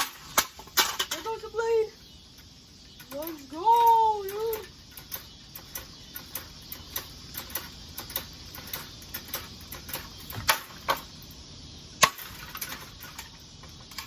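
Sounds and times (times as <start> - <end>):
sharp crack: 0.0 - 1.4, 4.9 - 11.2, 12.0 - 14.0
ceiling fan clicking and knocking: 2.3 - 11.4.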